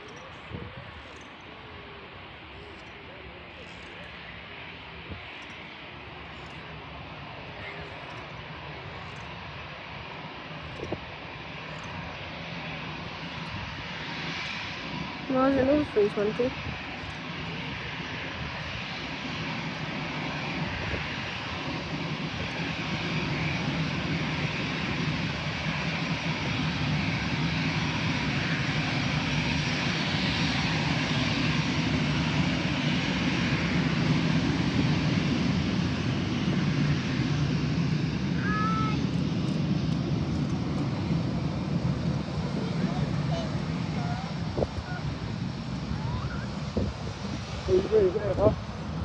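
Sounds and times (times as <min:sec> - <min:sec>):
jet airliner engine roar: 0:00.0 - 0:49.0.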